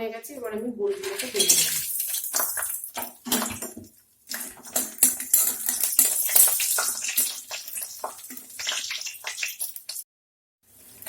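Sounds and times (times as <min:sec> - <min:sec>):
dumplings sizzling in oil: 0:00.9 - 0:10.0, 0:10.7 - 0:11.0
spoon clinking against pan: 0:04.3 - 0:09.9.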